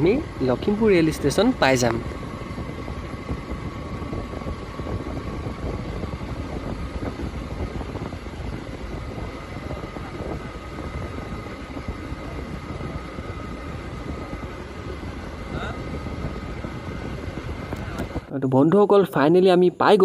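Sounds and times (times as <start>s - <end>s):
motorcycle engine and road rumble: 0.0s - 18.3s
faint constant whine: 0.0s - 20.0s.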